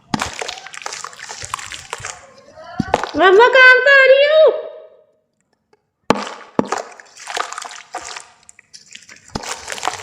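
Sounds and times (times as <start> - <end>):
splashing in water: 0.0 - 2.3, 6.1 - 10.0.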